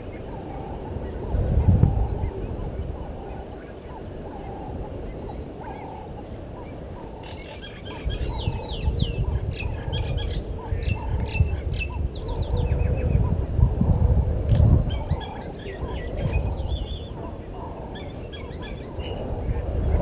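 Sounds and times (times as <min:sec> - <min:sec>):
low bird calls: 0:00.0 - 0:20.0.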